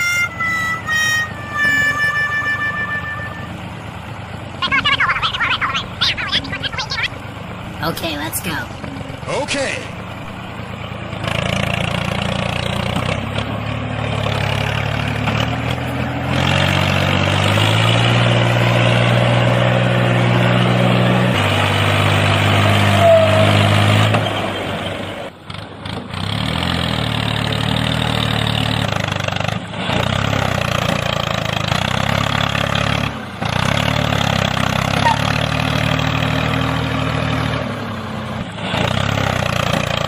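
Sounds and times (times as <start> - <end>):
tractor engine revving: 0.0 - 40.0.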